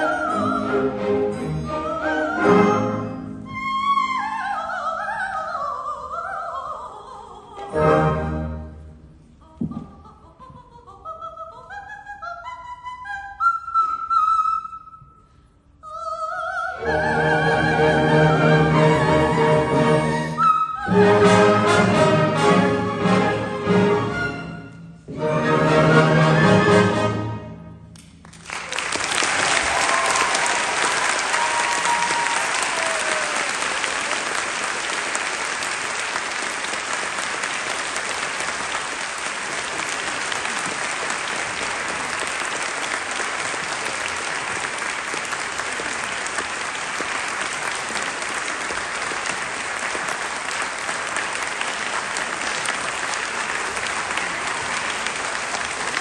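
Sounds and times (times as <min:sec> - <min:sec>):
orchestra playing: 0:00.0 - 0:04.3, 0:07.6 - 0:09.4, 0:16.8 - 0:27.9
audience applauding: 0:28.2 - 0:56.0.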